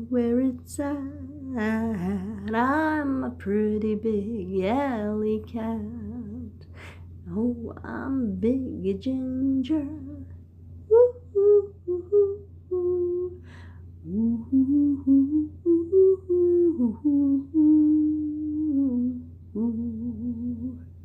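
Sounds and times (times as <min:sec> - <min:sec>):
person humming a slow tune: 0:10.9 - 0:21.0.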